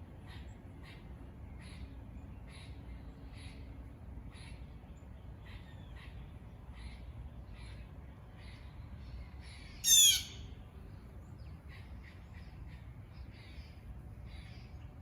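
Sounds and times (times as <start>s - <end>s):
birds chirping: 0.0s - 15.0s
loud bird call: 9.4s - 10.6s.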